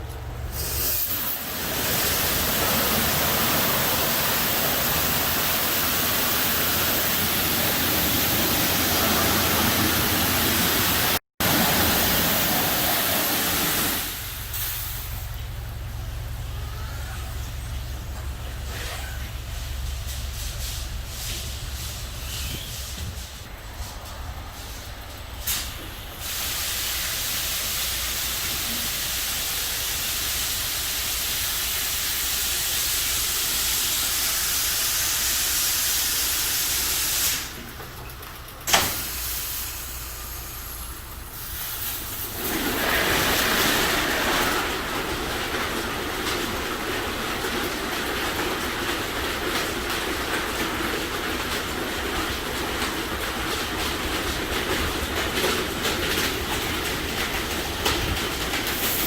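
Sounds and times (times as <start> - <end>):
high-pitched water spray hiss: 0.5 - 15.4, 25.5 - 37.6
deep rushing water spray: 0.5 - 15.5.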